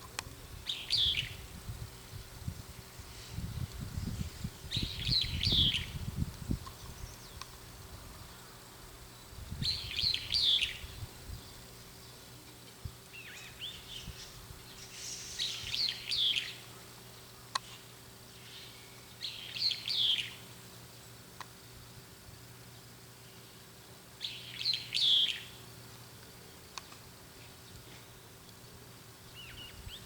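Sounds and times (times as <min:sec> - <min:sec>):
bulbul calling: 0:00.0 - 0:01.4, 0:04.6 - 0:06.0, 0:24.2 - 0:25.6.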